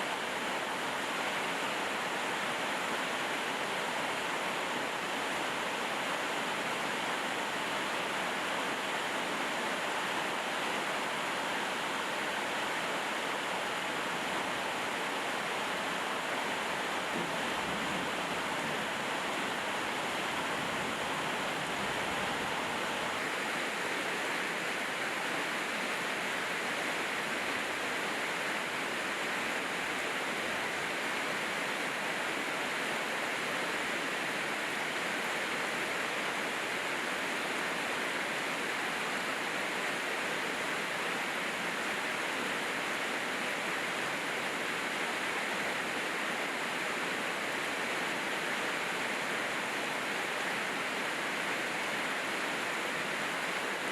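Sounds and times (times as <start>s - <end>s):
heavy rain falling: 14.0s - 26.1s.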